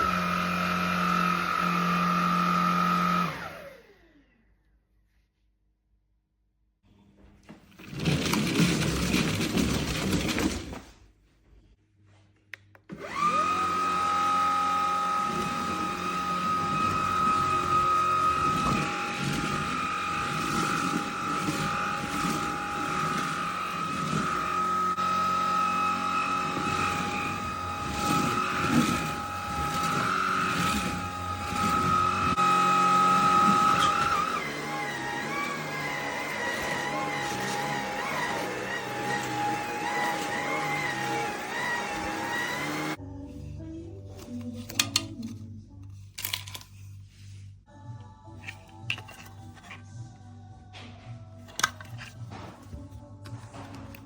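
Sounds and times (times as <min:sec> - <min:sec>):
vacuum cleaner motor whining: 0:00.0 - 0:04.4, 0:07.4 - 0:10.8, 0:12.9 - 0:43.0.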